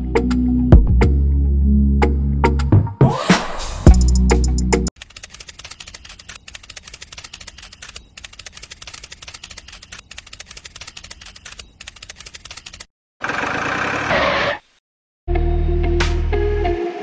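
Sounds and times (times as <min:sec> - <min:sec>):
rapid clicking of small motor mechanism: 0:05.0 - 0:12.9.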